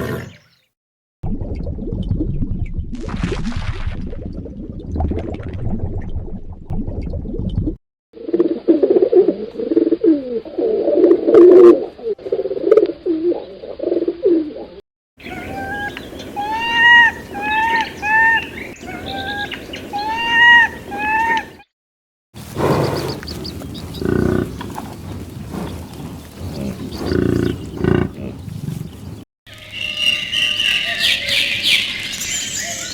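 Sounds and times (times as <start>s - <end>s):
gibbon whooping call: 15.2s - 21.6s
dove cooing: 22.4s - 29.2s.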